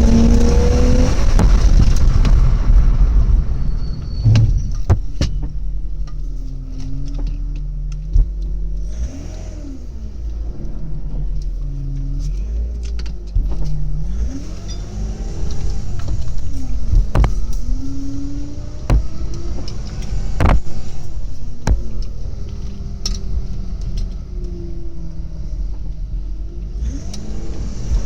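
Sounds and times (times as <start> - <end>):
car engine drone from inside cabin: 0.0 - 28.0
small clicks and knocks: 11.3 - 18.2.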